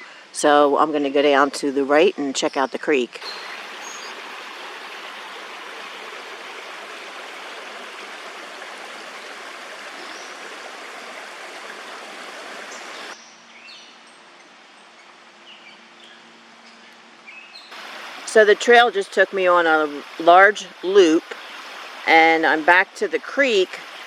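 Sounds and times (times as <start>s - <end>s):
creek water rushing: 3.2s - 13.2s, 17.7s - 24.0s.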